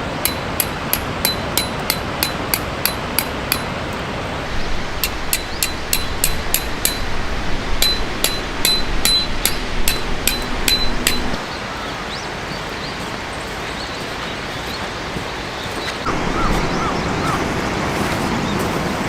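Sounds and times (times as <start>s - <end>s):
steady outdoor rushing noise: 0.0s - 19.0s
hammer blows on metal: 0.2s - 3.8s, 5.0s - 11.4s.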